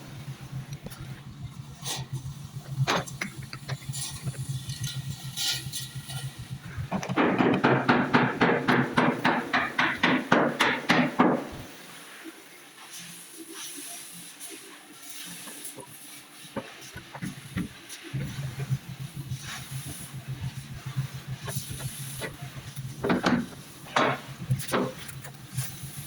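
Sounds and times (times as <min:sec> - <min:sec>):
steady low hum: 0:00.0 - 0:12.6, 0:17.0 - 0:26.0
hammer on steel: 0:07.1 - 0:11.6.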